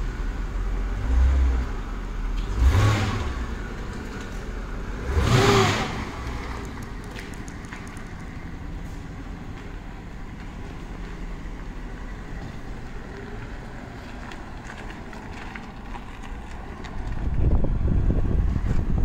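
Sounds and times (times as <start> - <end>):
car engine revving: 2.4 - 4.0, 4.8 - 8.2.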